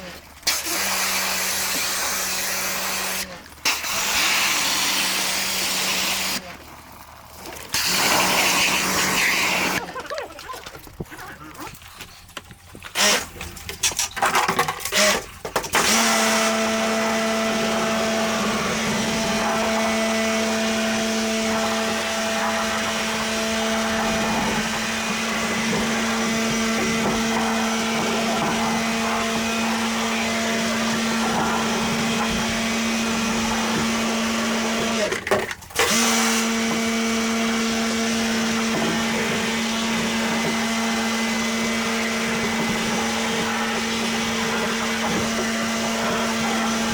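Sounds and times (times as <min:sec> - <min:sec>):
cleaning machine motor humming: 0:07.7 - 0:10.6, 0:15.8 - 0:46.9.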